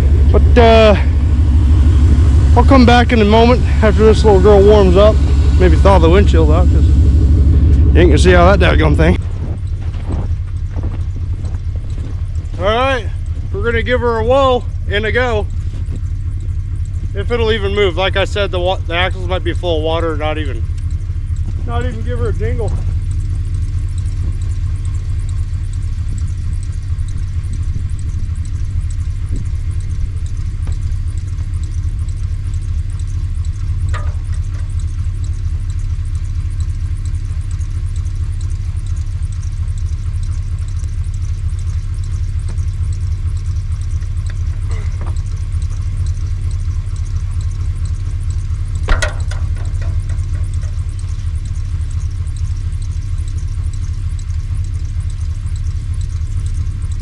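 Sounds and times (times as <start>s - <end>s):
engine running at low revs: 0.0s - 57.0s
sharp knocks or clanks: 33.8s - 34.8s, 48.7s - 51.1s.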